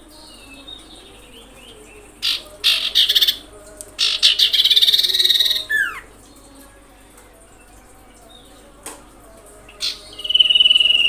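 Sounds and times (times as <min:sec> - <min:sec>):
bird chattering trills: 0:00.6 - 0:06.1.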